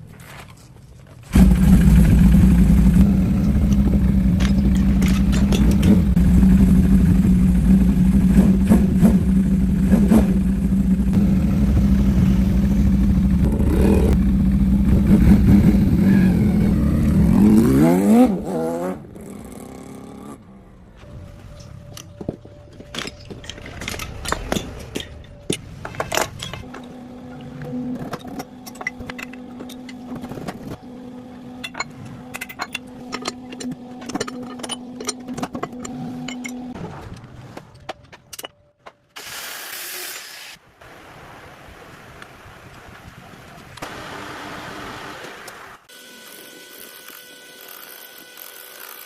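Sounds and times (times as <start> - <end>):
engine running steadily: 1.3 - 18.4
scattered clicks and clatter: 3.4 - 6.2.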